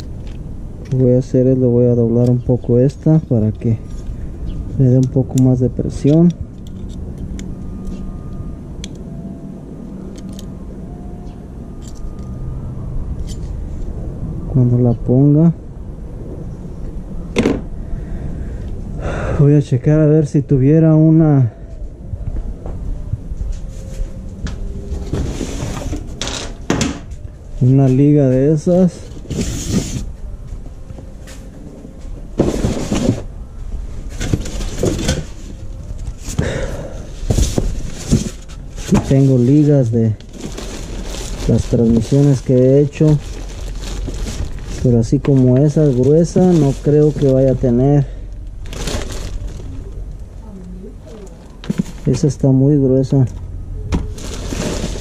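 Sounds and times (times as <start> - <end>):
low mechanical hum: 0.0 - 55.0
small parts rummaged by hand: 4.9 - 9.1, 10.1 - 10.6, 11.8 - 12.3, 34.0 - 50.3, 54.1 - 55.0.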